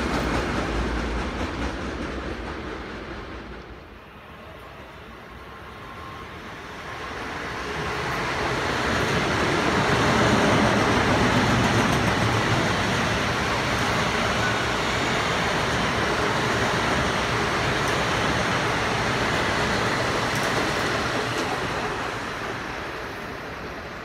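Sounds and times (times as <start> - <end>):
passenger train passing: 0.0 - 24.0.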